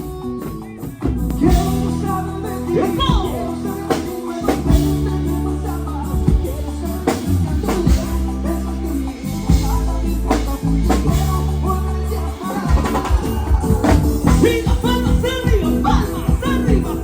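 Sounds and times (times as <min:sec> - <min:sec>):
bending melodic lead line: 0:00.0 - 0:17.0
live band playing: 0:00.0 - 0:17.0
drum hits: 0:12.6 - 0:17.0.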